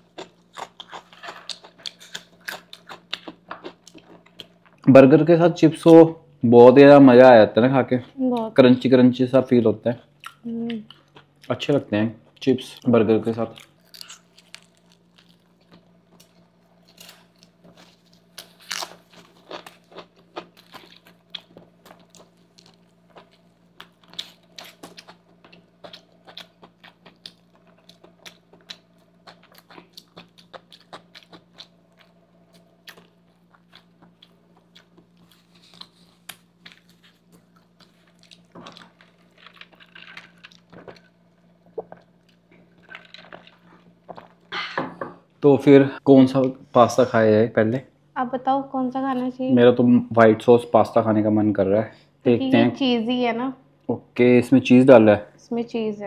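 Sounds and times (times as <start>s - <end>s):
chewing and crunching: 0.0s - 4.9s, 10.0s - 44.5s
air conditioner hum: 0.0s - 56.0s.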